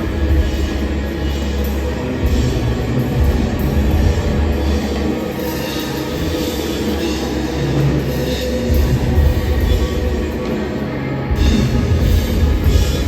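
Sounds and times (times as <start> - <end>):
drum kit: 0.0 - 13.0
heavy pulsing bass line: 0.0 - 13.0.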